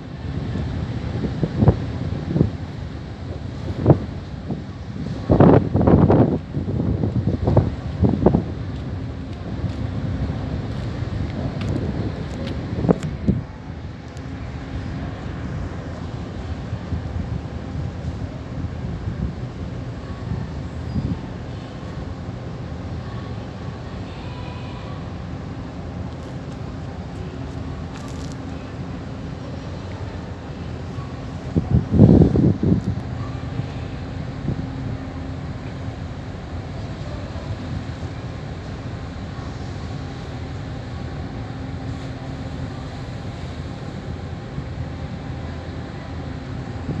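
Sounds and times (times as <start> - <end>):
ship engine rumble: 0.0 - 47.0
wind gust on microphone: 0.2 - 13.7, 31.3 - 35.1.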